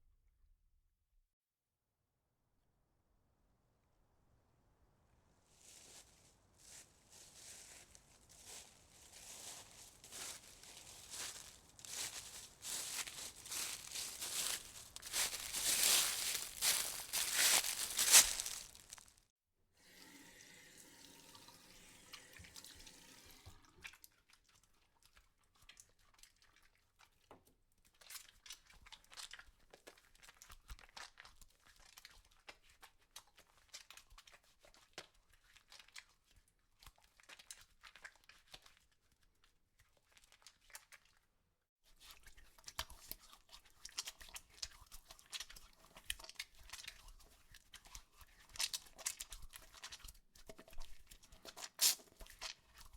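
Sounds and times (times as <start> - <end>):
material crackling and crinkling: 5.6 - 19.2.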